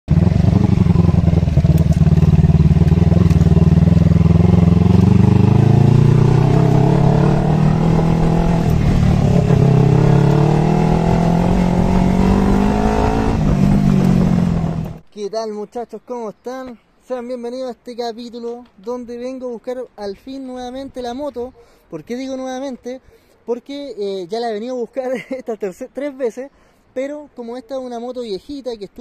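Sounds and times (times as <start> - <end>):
motorcycle engine revving: 0.1 - 15.0.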